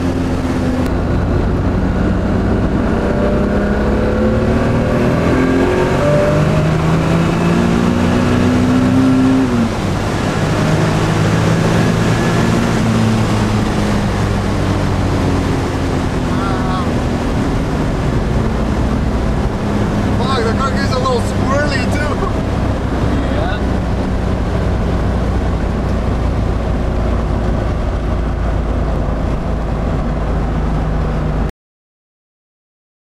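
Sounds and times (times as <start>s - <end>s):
car engine accelerating: 0.0s - 31.5s.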